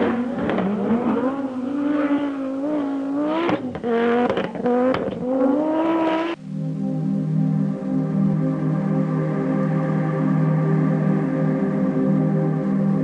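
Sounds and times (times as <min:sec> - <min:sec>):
car engine accelerating hard: 0:00.0 - 0:06.4.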